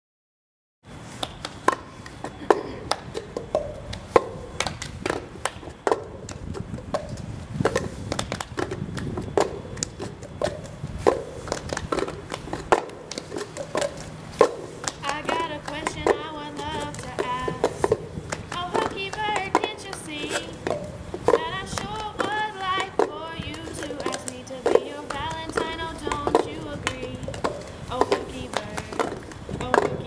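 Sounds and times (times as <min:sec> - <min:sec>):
hand claps: 0:01.2 - 0:06.5, 0:07.6 - 0:30.0
voices singing: 0:14.9 - 0:30.0.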